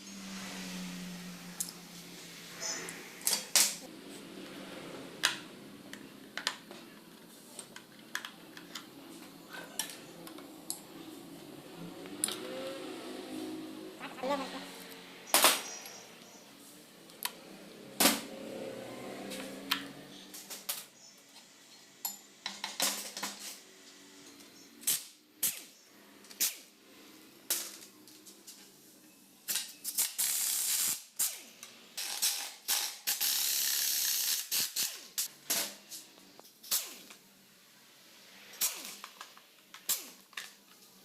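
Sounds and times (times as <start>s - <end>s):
ratchet clicks: 29.9s - 31.4s, 32.0s - 35.3s.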